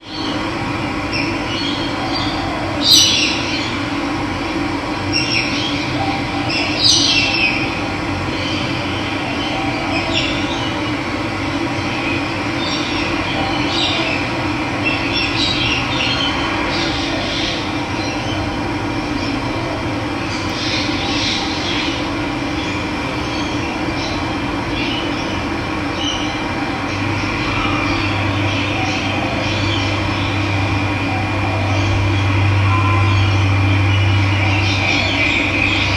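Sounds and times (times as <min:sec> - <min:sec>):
birds chirping: 0:20.2 - 0:35.9.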